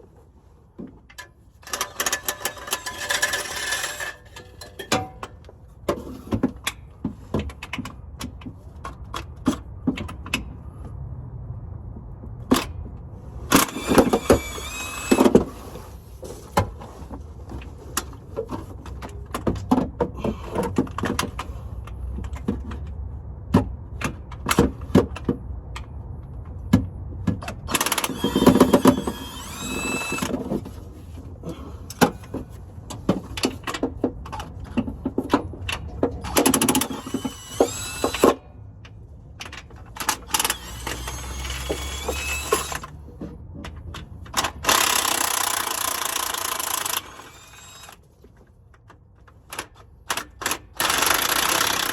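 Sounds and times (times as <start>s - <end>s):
cordless power tool running: 13.5s - 15.7s, 27.7s - 30.5s, 36.3s - 38.4s, 40.1s - 42.9s, 44.7s - 48.0s, 50.8s - 51.9s.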